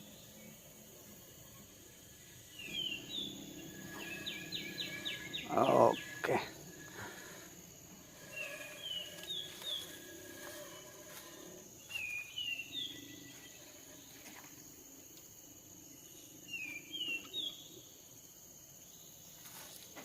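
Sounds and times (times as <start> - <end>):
high insect drone: 0.0 - 20.0
small bird whistling: 2.6 - 7.3.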